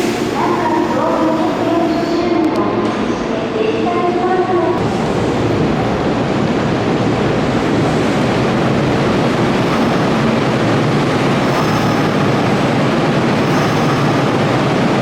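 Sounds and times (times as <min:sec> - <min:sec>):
electric train running: 0:06.9 - 0:15.0.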